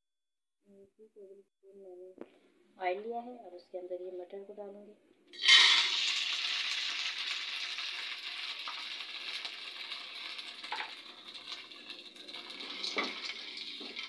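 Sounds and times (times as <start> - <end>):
small pops of frying oil: 5.3 - 14.0
peas sizzling in hot oil: 5.4 - 14.0.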